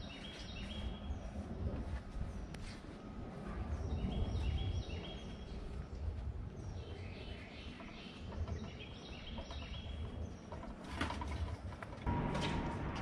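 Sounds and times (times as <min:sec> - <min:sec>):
songbird singing: 0:00.0 - 0:12.9
low outdoor rumble: 0:11.5 - 0:13.0.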